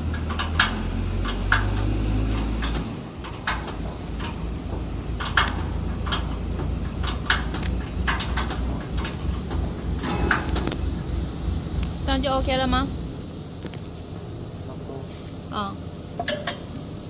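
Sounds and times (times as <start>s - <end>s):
low rumble: 3.8s - 14.7s.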